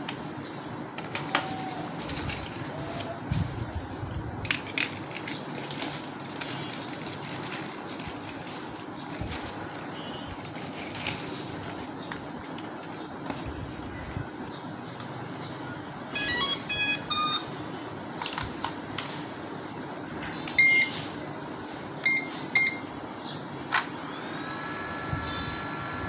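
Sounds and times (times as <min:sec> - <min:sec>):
electronic beeps: 0:16.2 - 0:17.5, 0:23.9 - 0:26.0
long held electronic tone: 0:16.2 - 0:17.5, 0:23.9 - 0:26.0.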